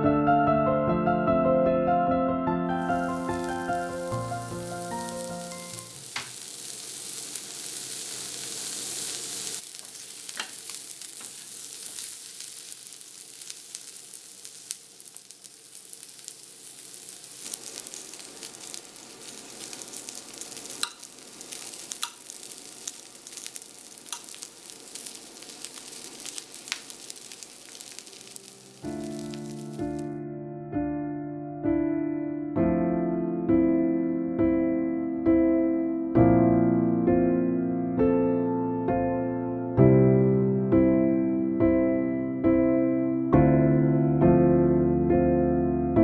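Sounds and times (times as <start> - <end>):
food sizzling in a pan: 2.7 - 30.2
pops and crackles: 2.8 - 30.1.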